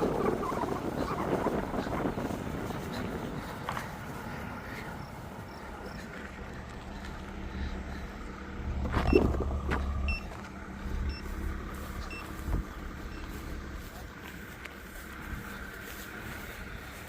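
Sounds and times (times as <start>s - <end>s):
vehicle engine idling: 0.0s - 17.0s
faint short beeps: 10.0s - 10.3s, 12.0s - 12.4s.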